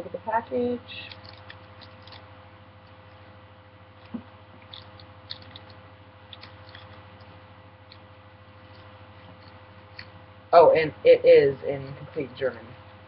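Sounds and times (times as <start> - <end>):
low electrical hum: 0.0 - 13.0
card pack crinkling: 0.9 - 3.3, 4.0 - 10.2.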